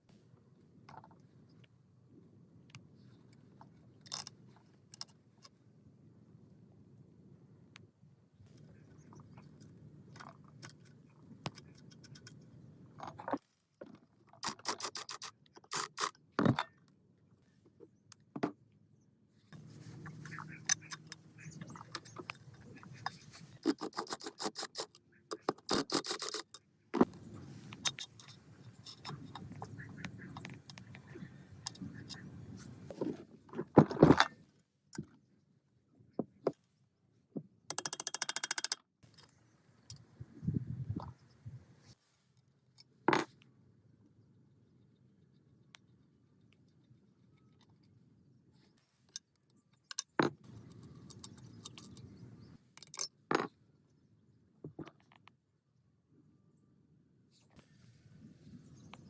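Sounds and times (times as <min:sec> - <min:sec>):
metal parts scraping and clinking: 0:14.4 - 0:16.1, 0:19.6 - 0:30.8, 0:49.9 - 0:52.2, 0:52.8 - 0:53.2.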